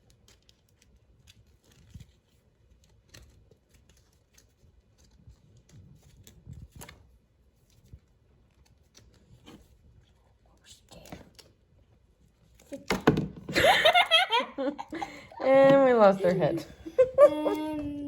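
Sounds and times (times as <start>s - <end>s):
rustles of plastic and doll clothes: 0.0s - 12.9s.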